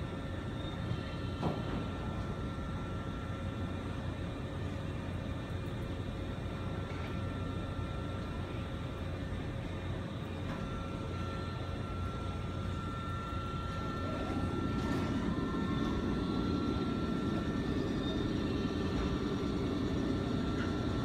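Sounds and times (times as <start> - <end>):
electric train running: 0.0 - 21.0
high whine: 10.5 - 21.0.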